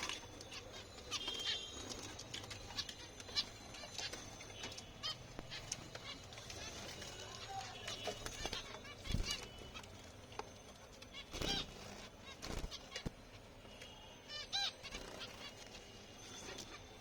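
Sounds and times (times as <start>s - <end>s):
finches honk-like calls: 0.5s - 9.9s, 11.1s - 15.6s.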